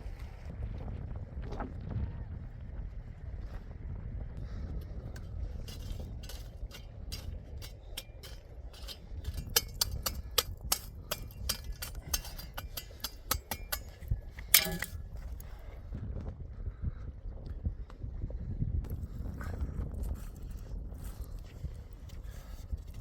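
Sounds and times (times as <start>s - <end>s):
low steady rumble: 0.0s - 23.0s
ringing scrape: 5.7s - 15.0s.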